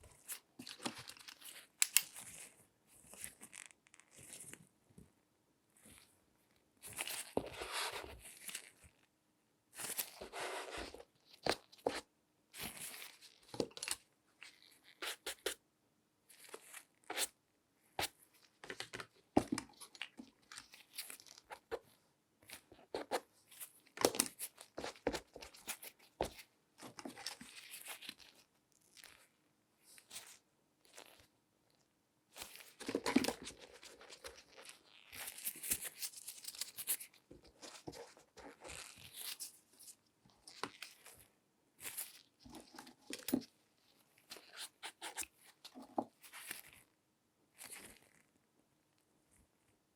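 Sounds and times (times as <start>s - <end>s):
gloved hands rustling and scraping: 0.0s - 4.7s, 6.8s - 9.1s, 9.8s - 15.6s, 32.3s - 46.9s.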